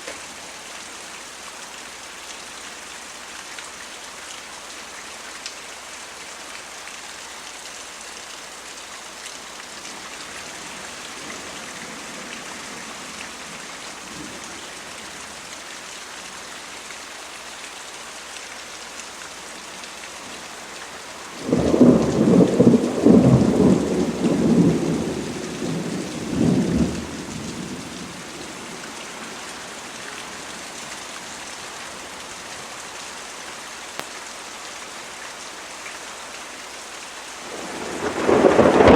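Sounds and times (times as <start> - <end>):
steady rain falling: 0.0 - 38.9
thunder rumbling: 21.4 - 28.3, 37.5 - 38.9.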